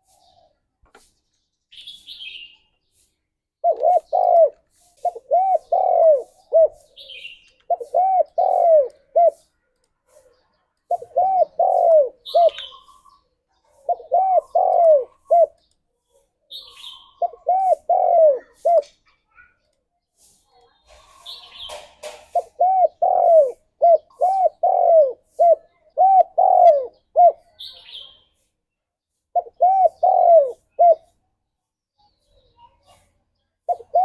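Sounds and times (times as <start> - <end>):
bird chirping: 0.0 - 34.0
dove cooing: 3.6 - 9.5, 10.9 - 13.1, 13.8 - 15.6, 17.1 - 18.9, 22.2 - 27.6, 29.4 - 31.1, 33.7 - 34.0.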